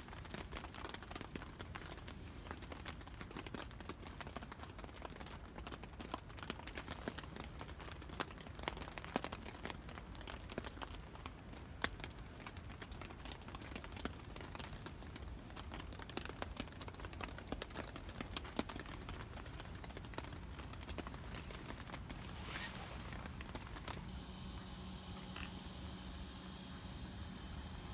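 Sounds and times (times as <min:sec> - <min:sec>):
raindrops tapping on tarp: 0:00.0 - 0:27.9
steady hiss of rain: 0:00.0 - 0:27.9.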